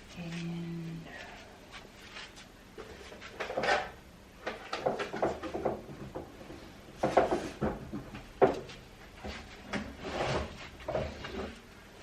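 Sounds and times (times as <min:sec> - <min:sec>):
items knocking on shelves: 0:04.5 - 0:06.4, 0:07.0 - 0:08.7.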